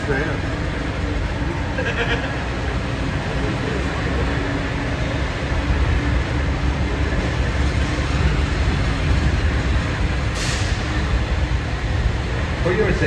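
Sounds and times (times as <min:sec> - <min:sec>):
tram rumbling: 0:00.0 - 0:13.0
air release hiss: 0:10.3 - 0:10.9.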